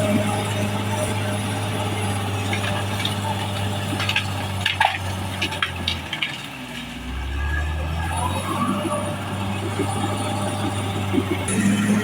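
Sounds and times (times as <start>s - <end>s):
bulldozer diesel engine running: 0.0s - 12.0s
sharp knocks and cracks: 2.5s - 6.5s.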